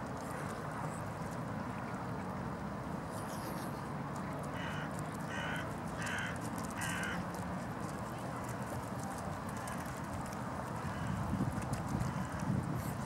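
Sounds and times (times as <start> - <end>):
bird harsh caw calls: 4.6 - 7.2.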